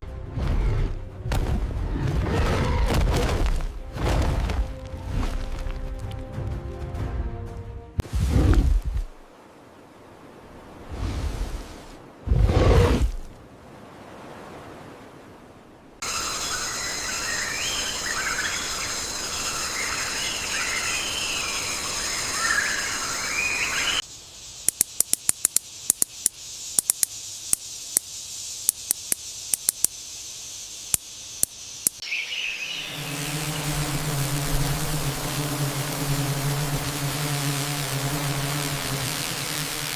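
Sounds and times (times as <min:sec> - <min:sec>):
warbling bird calls: 0:16.0 - 0:33.9
high insect drone: 0:16.0 - 0:39.9
thin high hiss: 0:16.0 - 0:39.9
sharp irregular clicks: 0:24.6 - 0:30.0, 0:30.9 - 0:32.0.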